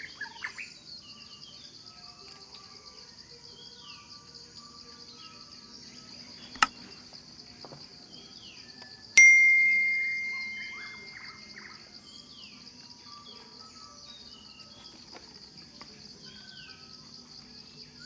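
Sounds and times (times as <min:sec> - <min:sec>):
high-pitched insect chorus: 0:00.0 - 0:18.0
bright chime-like ring: 0:09.2 - 0:11.7
falling bird chirps: 0:09.4 - 0:11.7.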